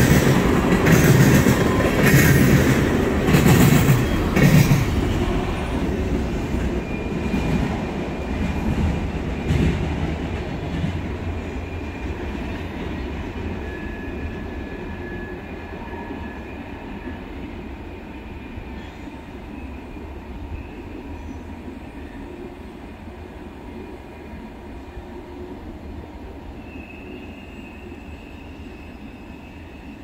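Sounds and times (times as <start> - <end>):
train wheels rumbling: 0.0 - 21.4
faint wheel squeal: 26.6 - 30.0.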